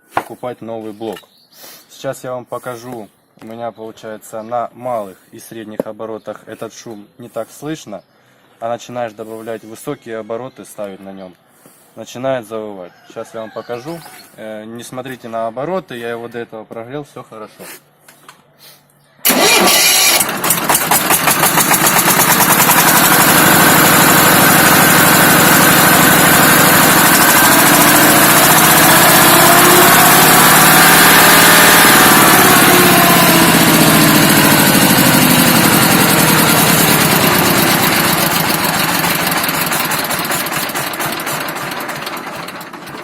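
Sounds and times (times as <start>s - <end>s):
diesel tractor engine running: 19.2s - 43.0s.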